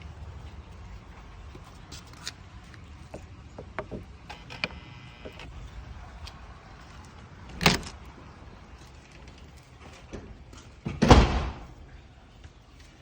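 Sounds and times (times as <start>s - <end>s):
low steady rumble: 0.0s - 10.6s
clicks and knocks: 3.1s - 5.5s
loud thump: 11.0s - 11.8s.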